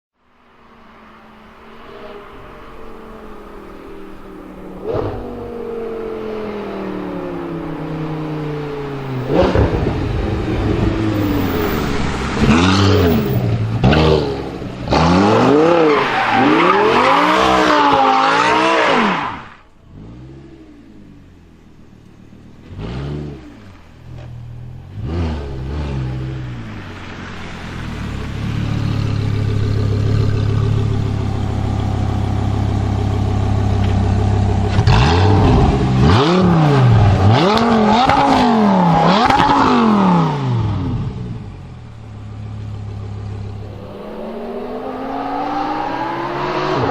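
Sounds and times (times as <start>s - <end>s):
sports car engine revving: 1.8s - 19.2s, 19.8s - 46.9s
exhaust crackling and popping: 26.9s - 40.0s.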